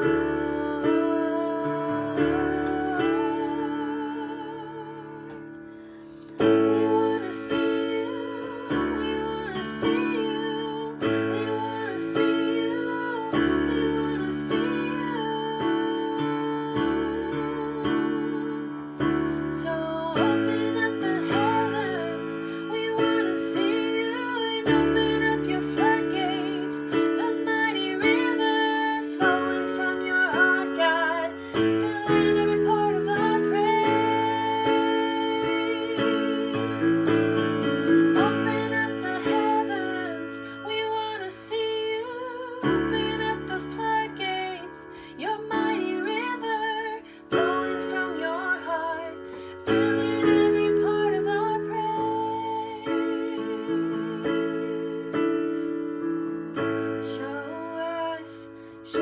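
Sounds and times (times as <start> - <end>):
woman singing worship song: 0.0 - 59.0.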